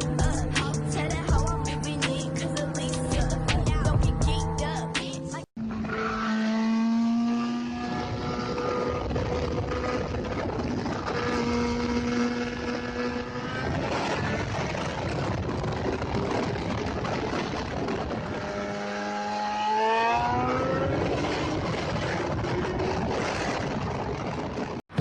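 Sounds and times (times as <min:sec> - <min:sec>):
motorcycle engine revving: 0:00.0 - 0:25.0
road noise: 0:00.0 - 0:25.0
heavy wind noise: 0:07.8 - 0:19.3, 0:20.1 - 0:25.0.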